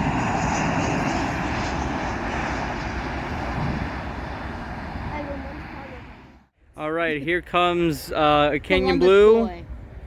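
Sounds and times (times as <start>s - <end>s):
jet airliner engines roaring: 0.0s - 6.5s.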